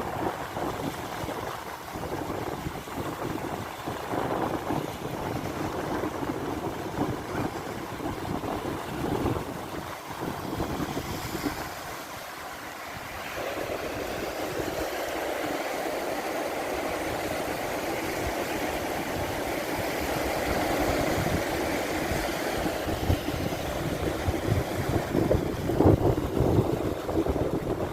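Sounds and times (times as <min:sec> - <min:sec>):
wind buffeting microphone: 0:00.0 - 0:15.5, 0:16.5 - 0:27.9
sea water rushing: 0:00.0 - 0:27.9.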